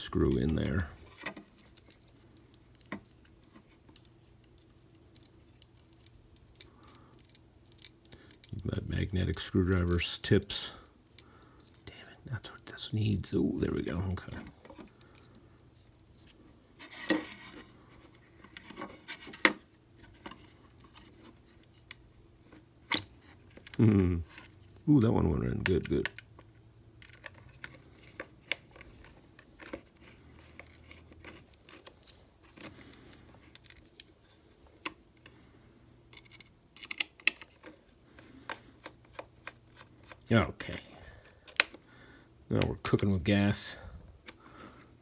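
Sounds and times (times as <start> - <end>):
low steady hum: 0.0 - 45.0
screwdriver scraping and clicking: 27.0 - 32.7.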